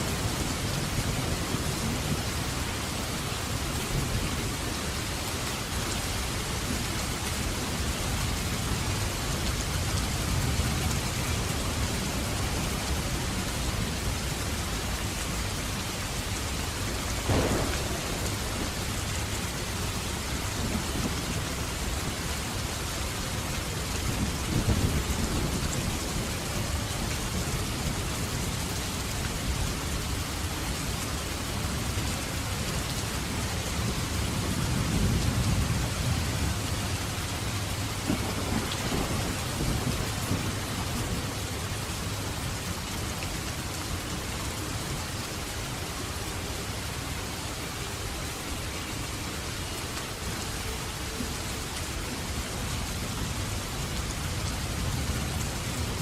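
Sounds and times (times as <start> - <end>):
heavy rain: 0.0 - 56.0
thunder rumbling and cracking: 17.2 - 22.5, 37.4 - 42.5.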